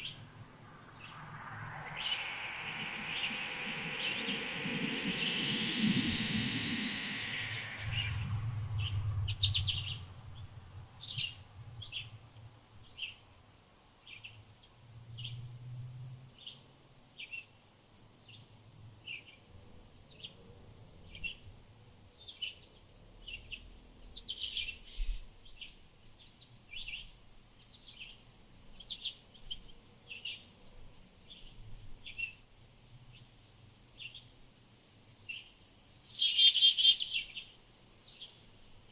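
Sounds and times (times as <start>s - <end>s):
fast high-pitched trill: 0.4s - 8.9s
small birds chirping: 35.3s - 38.9s.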